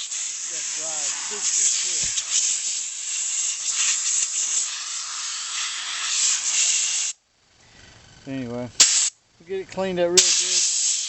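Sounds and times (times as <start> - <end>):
spraying hiss: 0.0 - 7.2, 8.8 - 9.2, 10.2 - 11.0.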